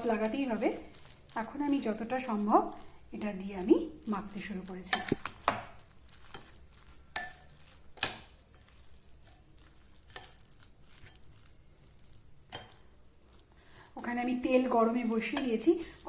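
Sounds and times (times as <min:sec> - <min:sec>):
spoon stirring noodles: 0:00.0 - 0:16.0
spoon clinking against bowl: 0:04.9 - 0:05.4, 0:06.2 - 0:08.8, 0:12.5 - 0:12.9.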